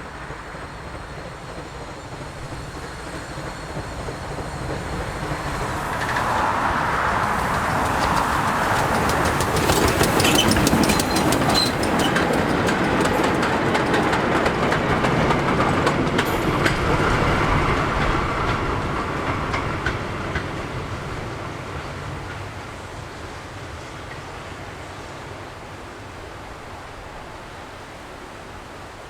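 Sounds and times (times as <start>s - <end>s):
steam train running past: 0.0s - 29.0s
wheels clattering over rail joints: 0.3s - 22.9s.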